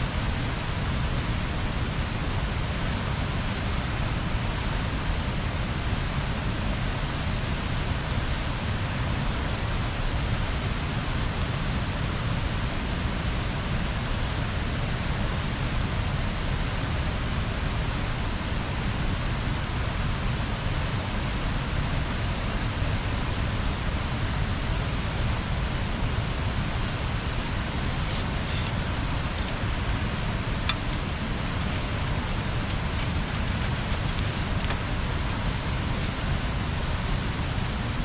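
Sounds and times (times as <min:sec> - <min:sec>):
bonfire burning: 0:27.6 - 0:37.6.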